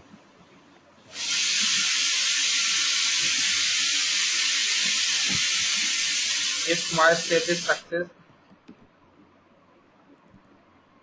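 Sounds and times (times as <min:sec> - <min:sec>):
loud steady hiss: 0:01.1 - 0:08.0.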